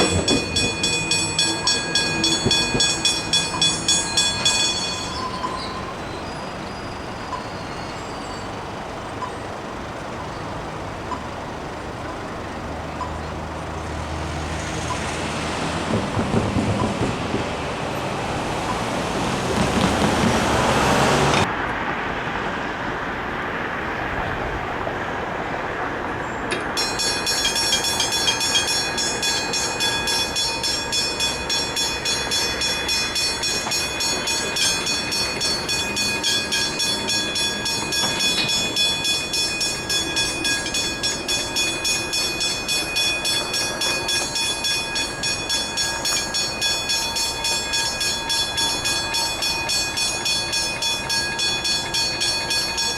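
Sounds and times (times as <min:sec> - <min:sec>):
level crossing bells ringing: 0:00.0 - 0:10.4, 0:26.5 - 0:52.9
loud rushing rail noise: 0:00.0 - 0:52.9.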